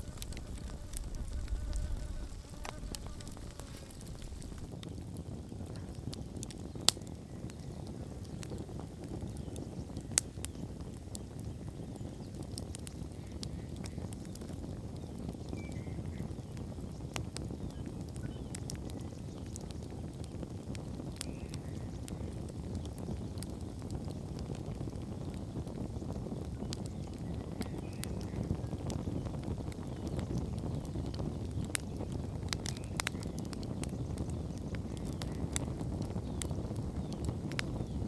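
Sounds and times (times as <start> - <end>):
low rush of fire: 0.0 - 5.1, 28.0 - 38.0
campfire crackling and popping: 0.0 - 38.0.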